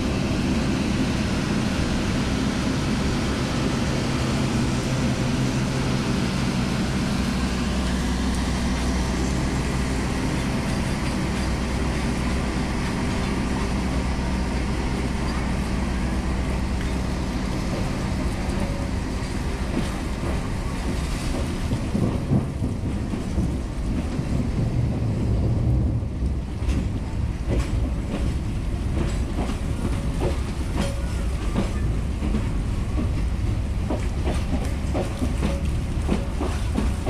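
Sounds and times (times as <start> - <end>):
train wheels rumbling on rails: 0.0 - 37.0
wheels clacking over rail joints: 9.6 - 37.0.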